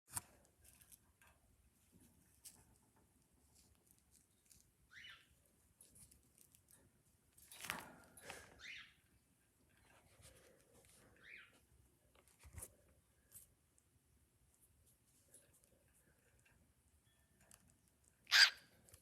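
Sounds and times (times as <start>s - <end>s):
faint clicks and scratches: 0.1s - 8.6s, 9.4s - 19.0s
bird squawking: 18.3s - 18.6s.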